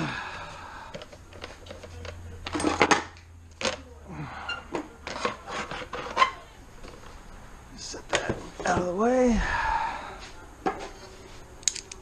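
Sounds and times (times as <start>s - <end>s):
metal parts and tools clinking: 1.0s - 3.8s.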